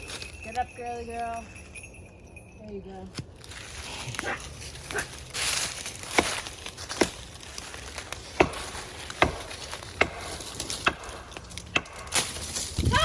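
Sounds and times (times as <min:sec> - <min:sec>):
stick knocking on tree trunk: 0:06.1 - 0:07.2, 0:08.3 - 0:12.0.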